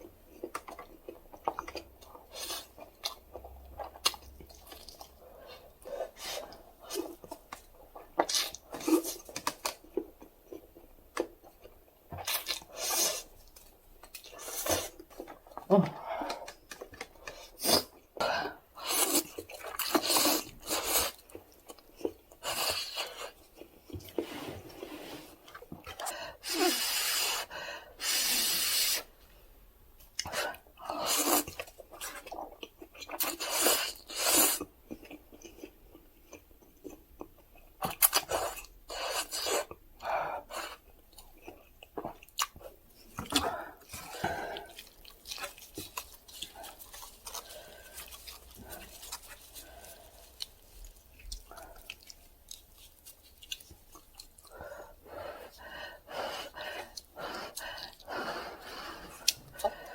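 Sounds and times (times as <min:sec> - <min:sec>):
chewing: 0:00.1 - 0:18.2, 0:18.8 - 0:24.2, 0:30.1 - 0:39.8, 0:40.4 - 0:55.7, 0:56.3 - 0:59.9.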